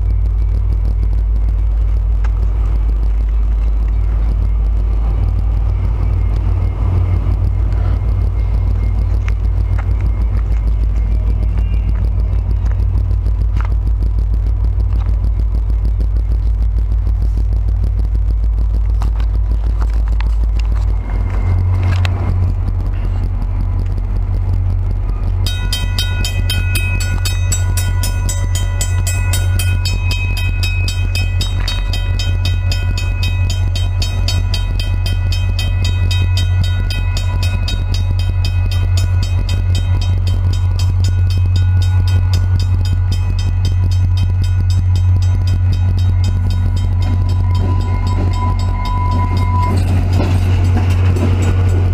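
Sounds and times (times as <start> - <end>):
train rumbling: 0.0 - 51.9
crossing bell ringing rapidly: 25.4 - 51.9.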